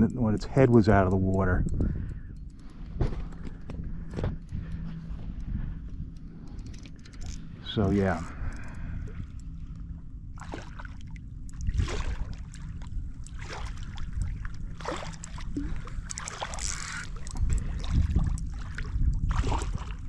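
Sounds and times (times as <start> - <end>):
low steady rumble: 0.0 - 20.0
water splashing against kayak hull: 8.4 - 20.0.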